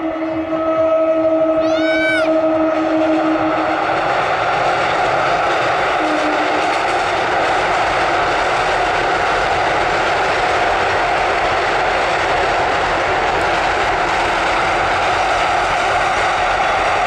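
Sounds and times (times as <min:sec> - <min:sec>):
train rumbling over steel bridge: 0:00.0 - 0:17.0.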